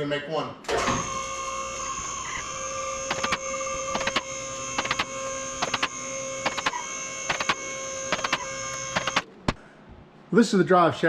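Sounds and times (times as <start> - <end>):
electrical hum: 0.0 - 11.0
bursts of clicking: 2.3 - 9.6.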